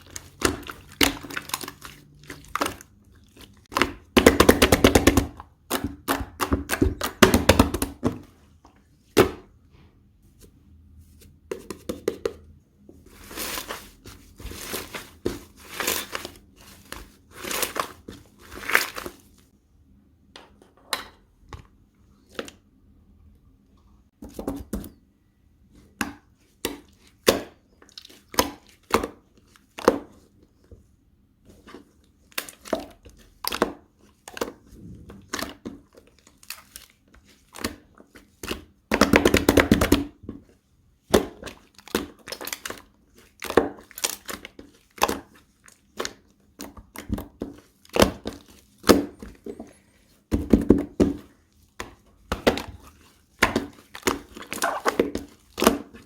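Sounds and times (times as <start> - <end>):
slime squeezed by hand: 54.4 - 55.1.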